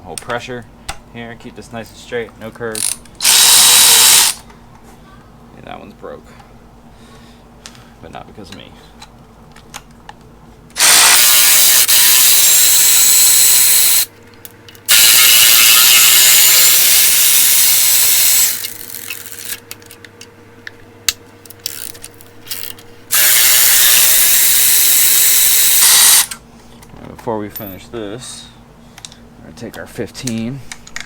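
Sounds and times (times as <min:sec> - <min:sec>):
power ratchet spinning bolts: 0:02.8 - 0:04.4, 0:10.8 - 0:14.1, 0:14.9 - 0:19.6, 0:21.5 - 0:26.4.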